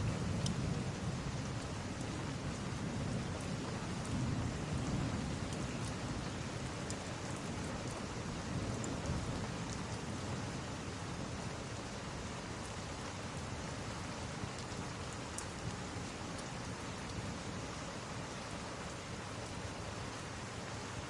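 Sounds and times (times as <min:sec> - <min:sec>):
heavy rain hissing: 0:00.0 - 0:21.0
faint ticks: 0:00.4 - 0:00.6, 0:06.8 - 0:08.0, 0:14.5 - 0:17.2.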